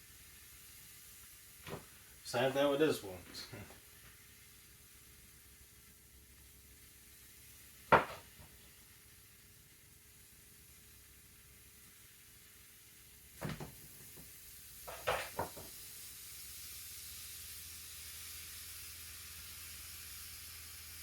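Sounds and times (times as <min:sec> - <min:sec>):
faint hiss: 0:00.0 - 0:21.0
kitchen things clattering: 0:14.9 - 0:15.6.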